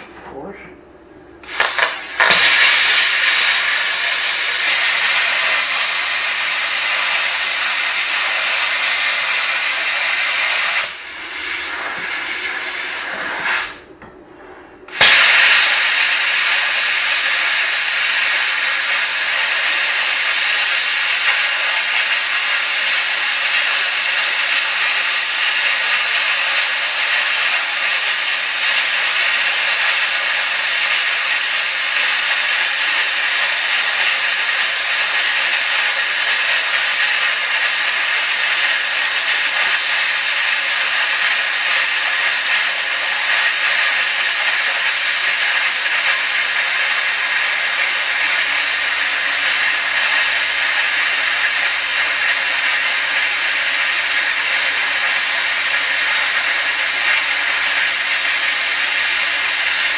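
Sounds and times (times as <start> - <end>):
plasma cutter hissing: 1.4 - 13.9, 14.9 - 59.9.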